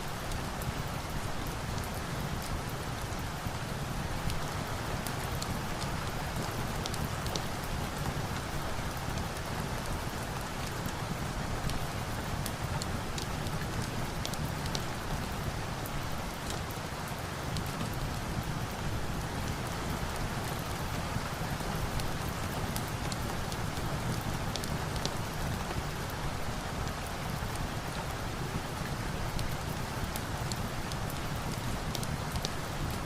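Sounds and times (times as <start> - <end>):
steady rain: 0.0 - 33.0.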